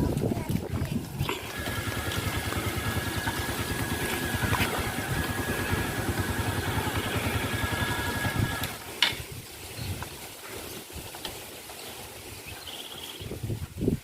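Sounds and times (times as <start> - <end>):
small motorcycle engine running: 1.1 - 8.8.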